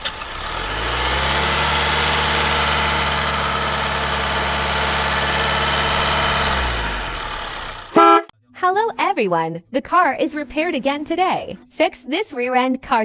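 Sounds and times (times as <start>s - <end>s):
engine idling: 0.0s - 8.3s.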